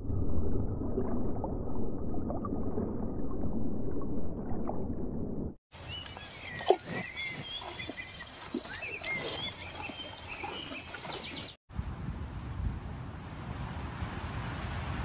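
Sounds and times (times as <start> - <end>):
small birds chirping: 5.8 - 11.6.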